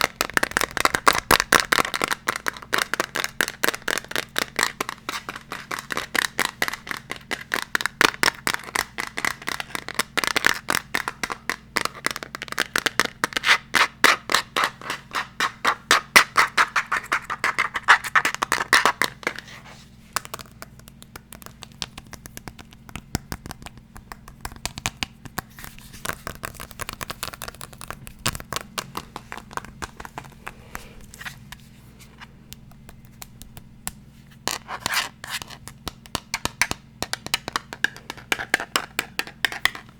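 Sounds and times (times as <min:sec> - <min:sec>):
fast scratching strokes: 0:01.7 - 0:12.1, 0:13.3 - 0:19.9.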